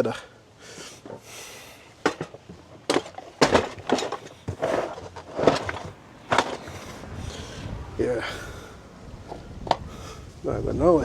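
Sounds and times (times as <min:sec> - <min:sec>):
tools clattering being stacked: 0:02.0 - 0:07.0.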